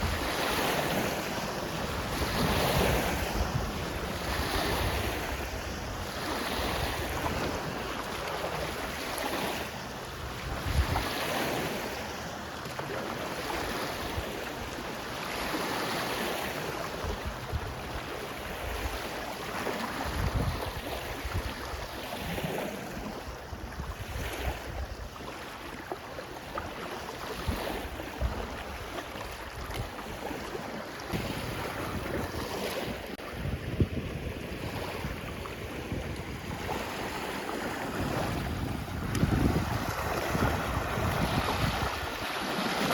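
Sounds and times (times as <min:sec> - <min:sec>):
wind gusting on microphone: 0:00.0 - 0:07.8, 0:10.2 - 0:11.6, 0:20.0 - 0:21.7, 0:31.1 - 0:42.9
lake waves washing on shore: 0:00.0 - 0:42.9.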